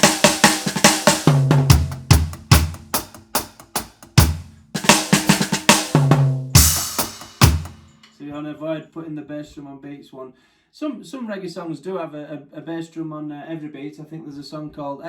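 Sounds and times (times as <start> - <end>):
deep bass drum thumps: 0.0 - 7.8
cymbal crash: 0.0 - 8.0
reggae drum kit playing: 0.0 - 8.0
snare and tom strikes: 0.0 - 8.1.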